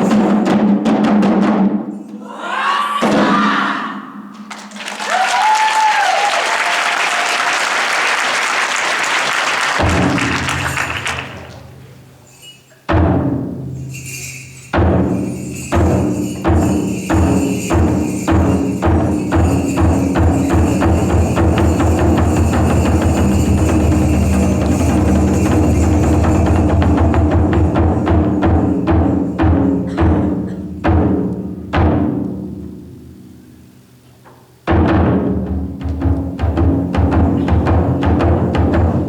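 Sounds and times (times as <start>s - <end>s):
deep taiko drum strikes: 9.8s - 10.6s, 34.7s - 39.0s.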